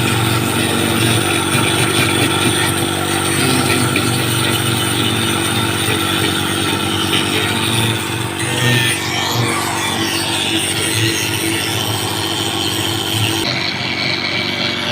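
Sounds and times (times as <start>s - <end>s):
small motor running: 0.0s - 14.9s.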